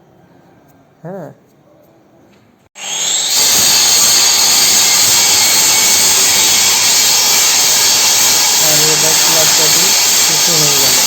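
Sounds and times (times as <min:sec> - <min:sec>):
concrete saw cutting: 0:02.8 - 0:11.0.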